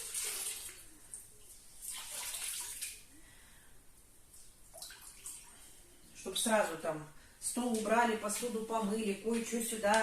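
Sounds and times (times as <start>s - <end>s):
water splashing in a bucket: 0.0s - 3.1s, 4.6s - 5.7s.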